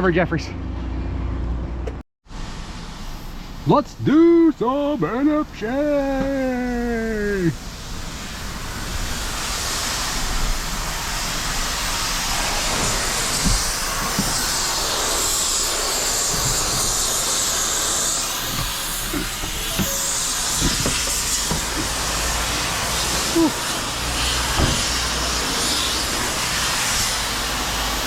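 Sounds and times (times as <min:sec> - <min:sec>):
vehicle road and wind noise: 0:00.0 - 0:03.7, 0:07.6 - 0:17.1, 0:17.8 - 0:27.7
light knocks and rattles: 0:18.4 - 0:22.0.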